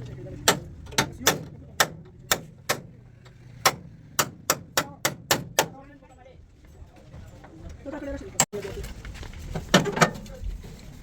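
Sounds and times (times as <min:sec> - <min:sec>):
hammer striking sheet metal: 0:00.4 - 0:03.0, 0:03.6 - 0:05.8.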